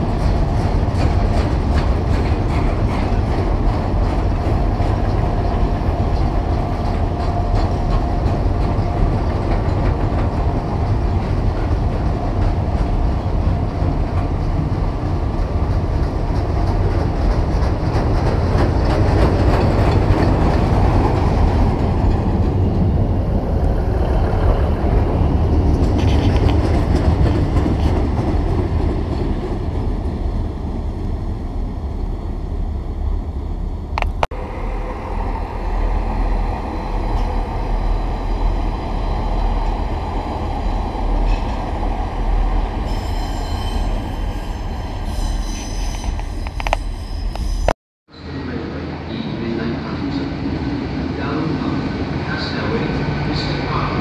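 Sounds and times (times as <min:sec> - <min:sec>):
freight wagons rolling on rails: 0:00.0 - 0:30.4
diesel train running past: 0:00.0 - 0:54.0.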